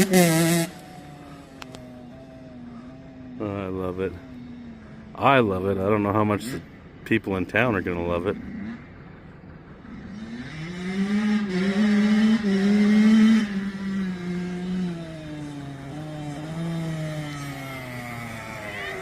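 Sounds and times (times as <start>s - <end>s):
dirt bike engine revving: 0.0s - 3.8s, 8.2s - 19.0s.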